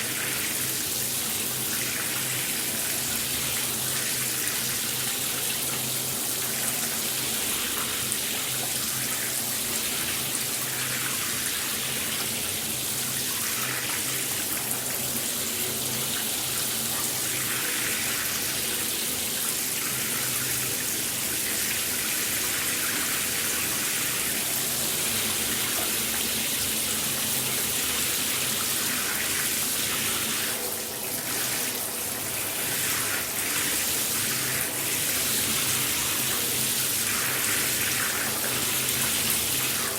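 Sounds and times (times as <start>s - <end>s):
shower water spraying: 21.1s - 39.9s.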